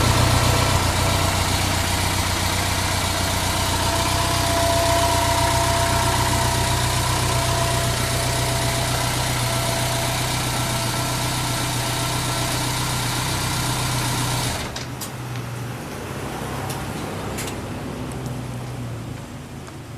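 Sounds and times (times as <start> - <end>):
motorcycle engine idling: 0.0 - 14.8.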